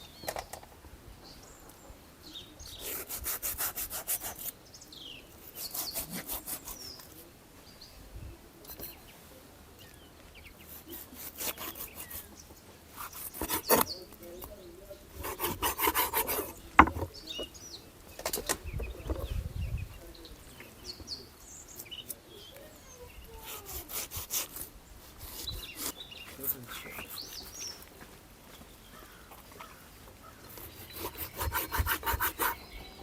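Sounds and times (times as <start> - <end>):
birds chirping faintly: 0.0 - 33.0
wood scraping and rubbing: 10.6 - 17.6, 23.3 - 28.0, 29.0 - 32.9.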